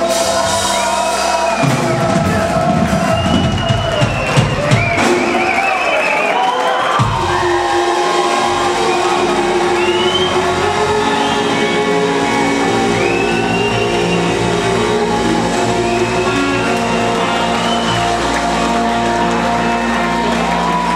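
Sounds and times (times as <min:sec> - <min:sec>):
live rock band playing: 0:00.0 - 0:20.9
electric guitar: 0:07.0 - 0:20.9.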